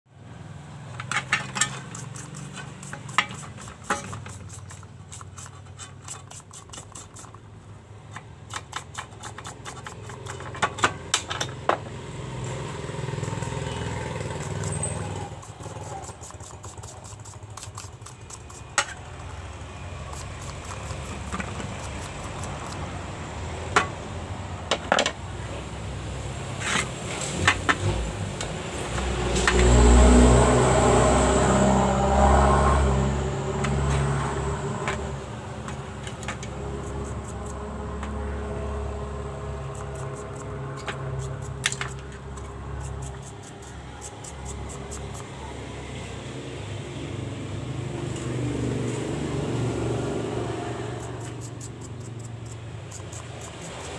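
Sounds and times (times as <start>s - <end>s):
metal parts clinking and knocking: 0.9s - 7.4s, 8.1s - 11.9s, 35.6s - 38.1s, 39.7s - 45.2s.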